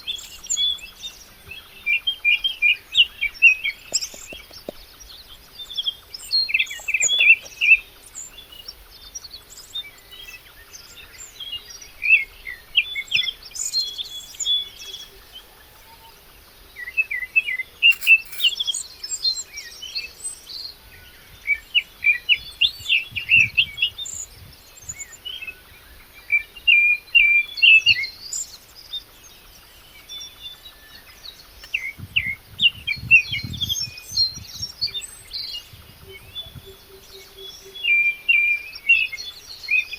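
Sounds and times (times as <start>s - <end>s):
small birds chirping: 0.0s - 20.8s.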